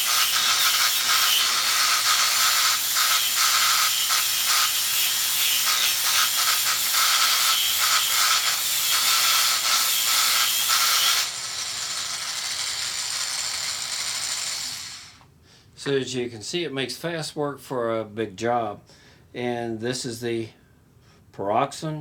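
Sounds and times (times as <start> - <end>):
sanding wheel rasping: 0.0 - 12.6
die grinder high whine: 0.0 - 15.2.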